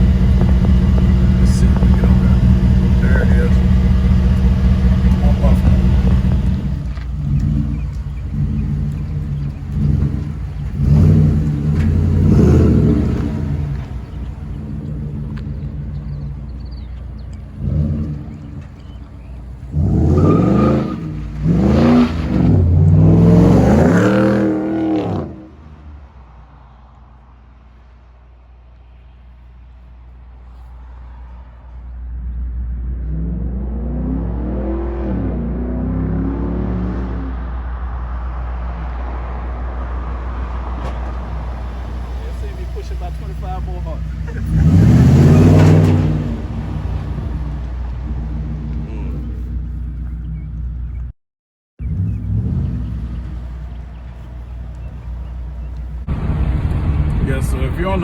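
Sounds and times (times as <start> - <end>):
engine idling: 0.0 - 20.1, 39.4 - 51.1, 51.8 - 58.0
engine revving: 0.0 - 25.6, 31.7 - 50.5, 51.8 - 58.0.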